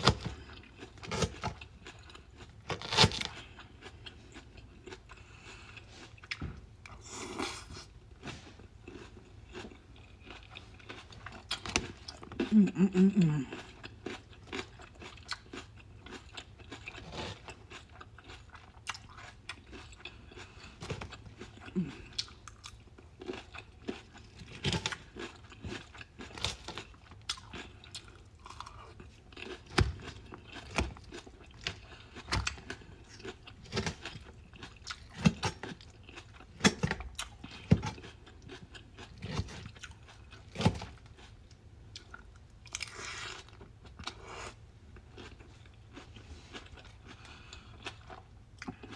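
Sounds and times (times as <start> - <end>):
chewing crunchy salad: 0.0 - 48.9.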